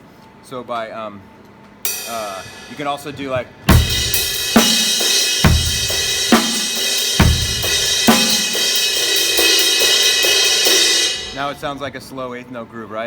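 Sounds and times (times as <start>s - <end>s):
crash cymbal: 1.9s - 2.9s, 3.7s - 11.8s
bass drum: 3.7s - 11.6s
snare backbeat: 3.7s - 11.7s.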